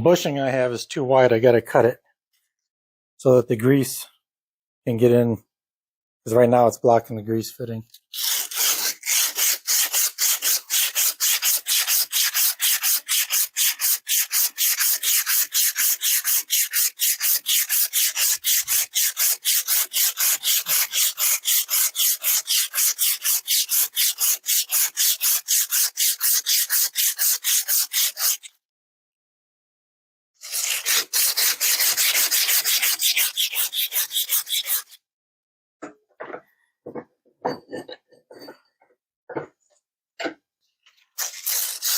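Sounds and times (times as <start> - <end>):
hand strokes scraping on steel: 8.2 - 28.5, 30.4 - 35.0, 41.2 - 41.9.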